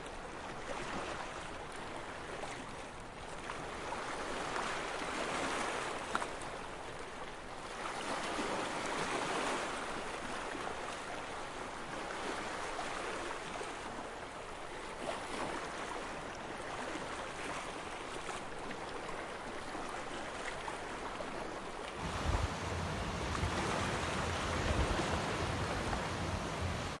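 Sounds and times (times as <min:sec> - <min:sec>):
low rumble: 0:22.0 - 0:27.0
small waves washing in: 0:22.0 - 0:27.0.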